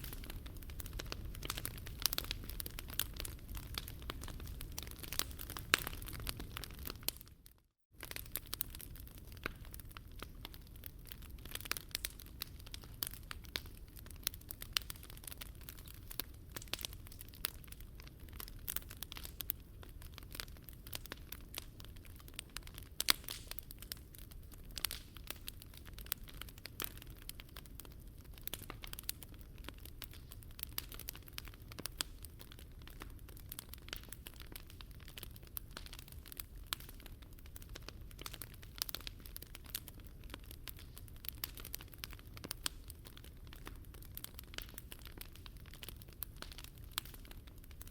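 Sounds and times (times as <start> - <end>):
fire popping and snapping: 0.0 - 47.9
wood fire crackling: 0.0 - 47.9.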